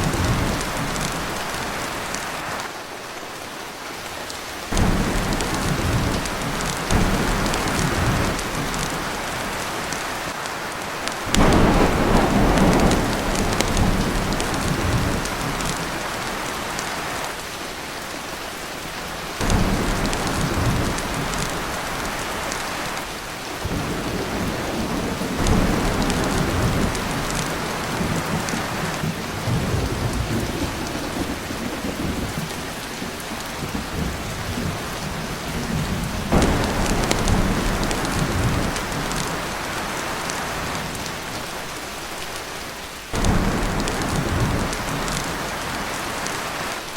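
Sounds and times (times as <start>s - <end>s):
heavy rain on a tin roof: 0.0s - 46.9s
thunder rolling: 4.7s - 10.0s, 11.3s - 16.4s, 19.4s - 22.8s, 23.6s - 40.9s, 43.2s - 46.3s.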